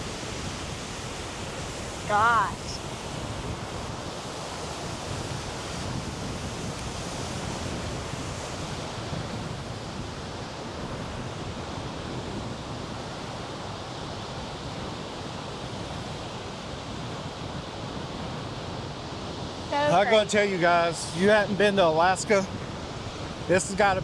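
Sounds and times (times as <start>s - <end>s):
waterfall rushing: 0.0s - 6.0s, 19.6s - 23.5s.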